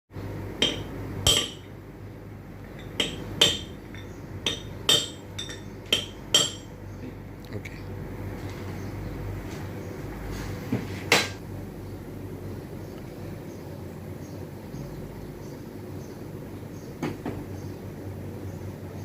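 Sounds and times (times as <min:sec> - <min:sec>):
steady low hum: 0:00.2 - 0:19.0.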